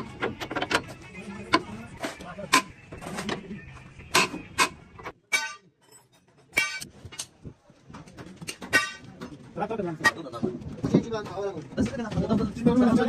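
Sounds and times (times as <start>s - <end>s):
metal knocks and clangs: 4.1s - 13.0s.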